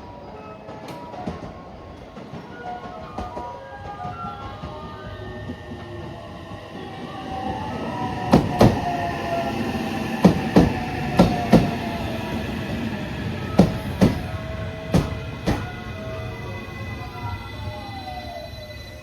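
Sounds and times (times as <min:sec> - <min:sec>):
train rumbling: 0:00.0 - 0:19.0
train wheels clacking on rail joints: 0:08.2 - 0:09.0, 0:10.2 - 0:16.0.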